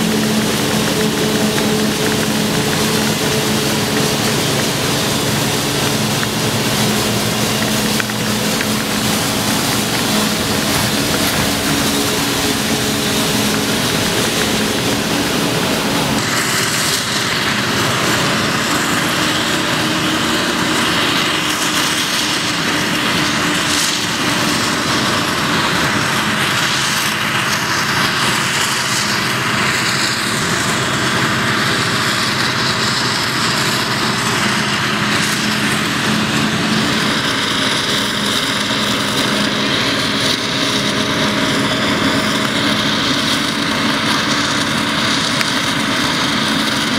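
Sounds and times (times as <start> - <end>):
broad rushing noise: 0.0 - 46.9
forage harvester engine drone: 0.0 - 46.9.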